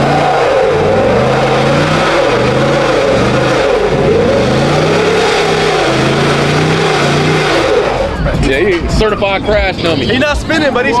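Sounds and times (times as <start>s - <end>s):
car engine revving hard: 0.0s - 8.4s.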